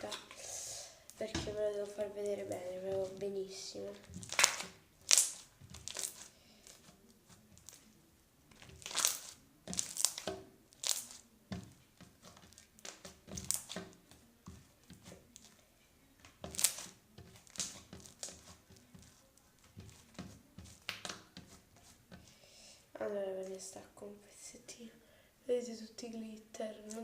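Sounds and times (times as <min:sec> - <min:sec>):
crunchy slime crackling and popping: 0:04.0 - 0:07.8, 0:08.5 - 0:14.0, 0:16.2 - 0:21.2.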